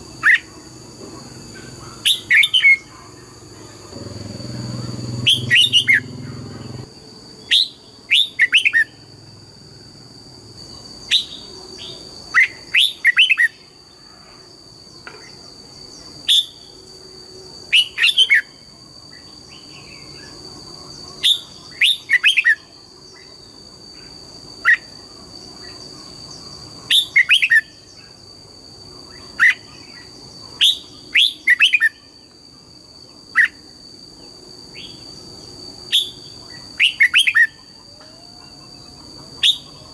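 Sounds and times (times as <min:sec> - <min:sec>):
bird singing whistled notes: 0:04.0 - 0:09.0, 0:11.1 - 0:13.6, 0:26.9 - 0:28.1, 0:29.1 - 0:32.2, 0:35.9 - 0:37.8.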